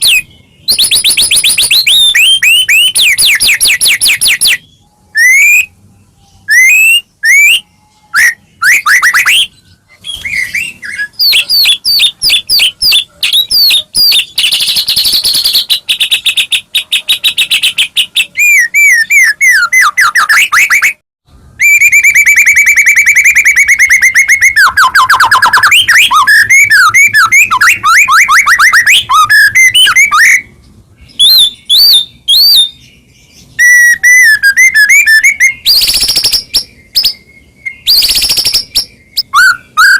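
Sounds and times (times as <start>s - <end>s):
bird singing whistled phrases: 0.0s - 21.0s, 21.6s - 39.9s.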